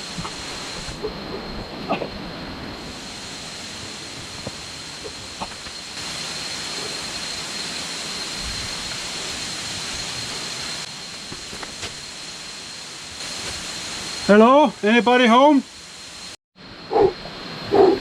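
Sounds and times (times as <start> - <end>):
high-pitched whine: 0.0 - 18.0
rushing water hiss: 0.0 - 18.0.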